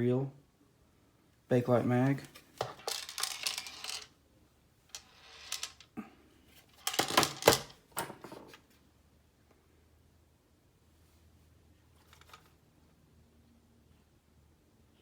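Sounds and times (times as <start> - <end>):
magazine clicking and rattling: 6.8 - 7.8.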